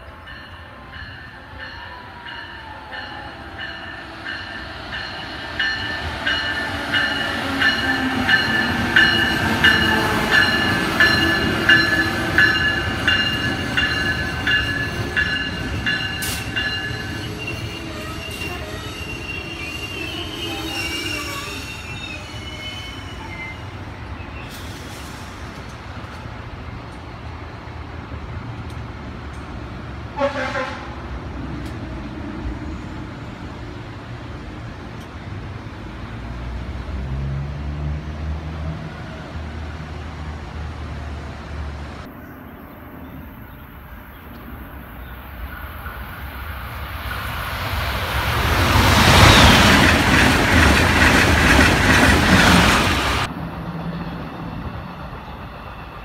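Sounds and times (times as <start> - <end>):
train passing at speed: 0.0 - 56.0
wheels squealing: 16.2 - 25.3.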